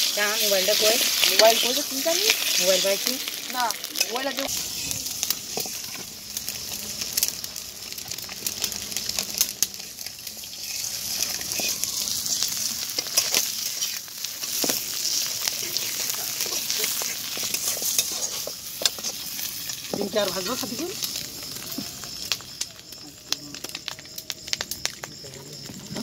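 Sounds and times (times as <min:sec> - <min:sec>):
onions sizzling in hot oil: 0:00.0 - 0:26.0
metal spatula scraping pan: 0:10.4 - 0:19.6.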